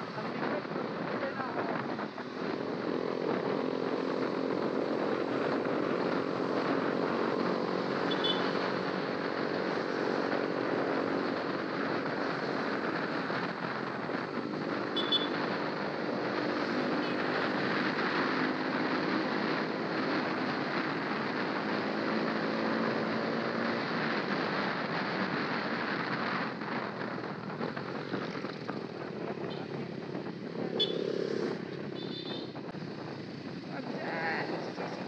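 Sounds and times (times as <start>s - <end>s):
motorcycle engine running: 0.0s - 23.1s, 25.7s - 35.0s
wind rushing over microphone: 0.0s - 35.0s.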